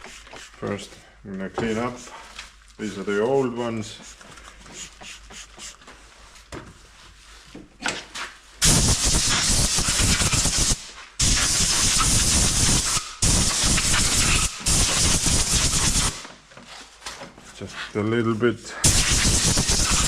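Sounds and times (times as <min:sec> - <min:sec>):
pressurised jet hissing: 0:08.6 - 0:16.2, 0:18.8 - 0:20.0.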